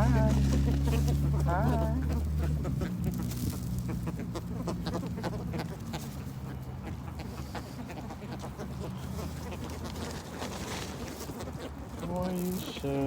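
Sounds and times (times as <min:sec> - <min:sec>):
fowl calling: 0:00.0 - 0:13.0.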